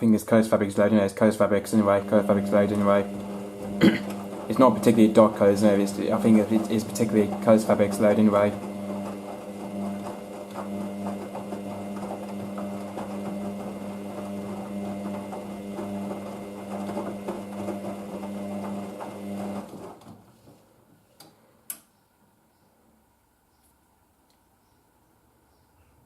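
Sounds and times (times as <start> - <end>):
washing machine humming: 0.0 - 20.3.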